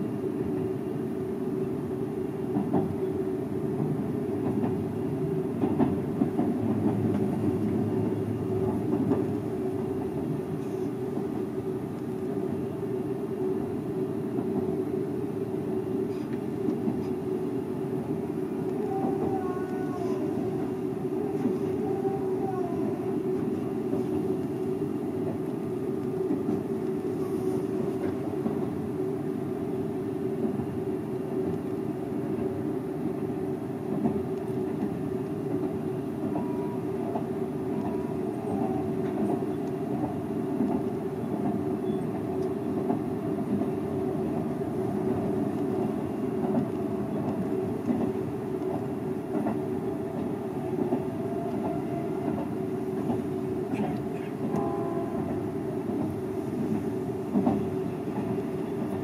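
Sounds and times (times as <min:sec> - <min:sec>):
wheels rumbling on rails: 0:03.8 - 0:12.9, 0:33.9 - 0:59.0.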